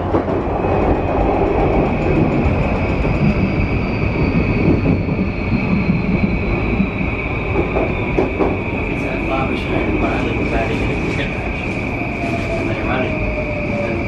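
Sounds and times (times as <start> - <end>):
train wheels rumbling: 0.0 - 14.0.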